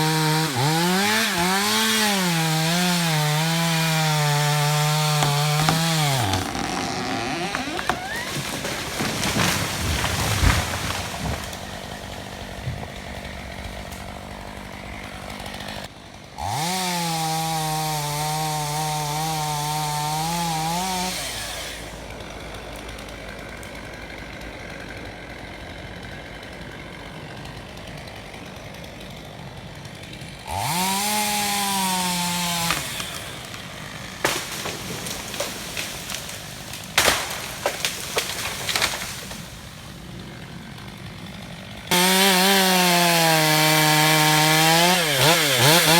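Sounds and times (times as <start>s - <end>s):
chainsaw revving: 0.0s - 45.9s
sharp knocks and cracks: 0.4s - 15.9s, 32.3s - 40.0s.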